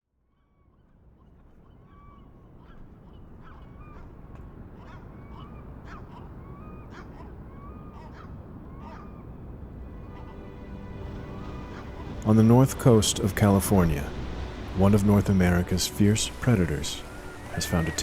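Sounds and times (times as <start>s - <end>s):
birds calling: 0.6s - 18.0s
steady low rumble: 9.7s - 18.0s.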